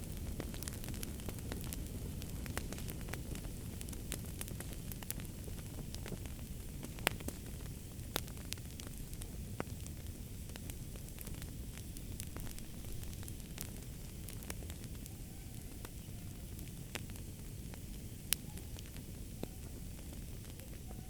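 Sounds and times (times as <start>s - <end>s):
fire crackling: 0.0s - 21.0s
low rumble of flames: 0.0s - 21.0s
sharp pops and snaps: 0.1s - 15.1s.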